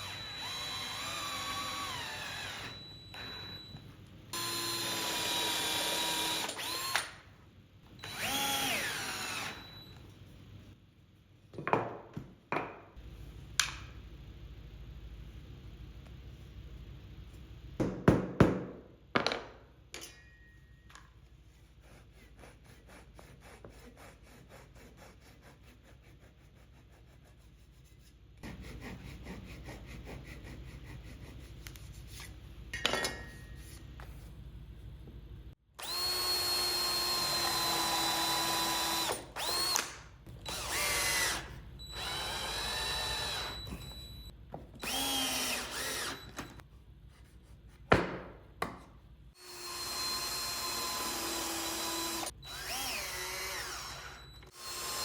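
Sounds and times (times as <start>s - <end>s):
cordless drill whining: 0.0s - 3.7s, 4.4s - 7.1s, 8.0s - 9.9s, 35.8s - 39.8s, 40.4s - 46.6s, 49.4s - 55.0s.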